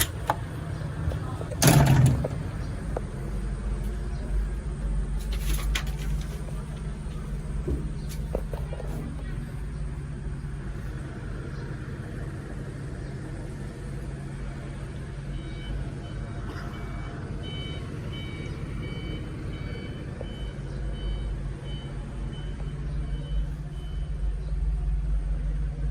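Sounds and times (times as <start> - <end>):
backhoe engine running: 0.0 - 25.9
reversing alarm beeping: 15.2 - 24.4.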